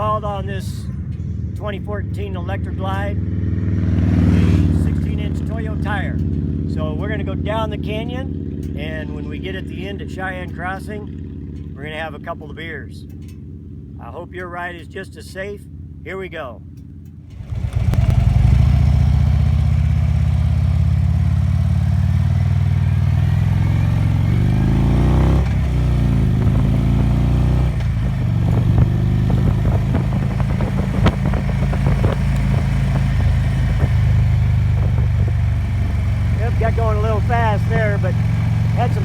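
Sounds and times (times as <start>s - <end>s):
motorcycle engine accelerating: 0.0s - 14.0s, 16.6s - 39.0s.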